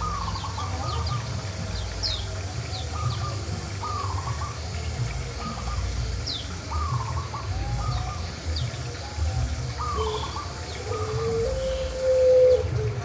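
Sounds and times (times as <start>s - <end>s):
bird calling lower phrase: 6.7s - 13.0s.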